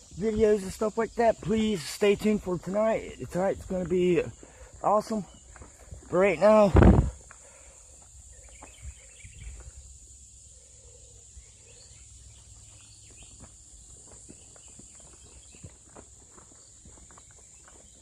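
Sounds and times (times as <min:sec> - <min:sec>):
insects chorus: 0:00.0 - 0:18.0
footsteps rustling: 0:12.4 - 0:18.0.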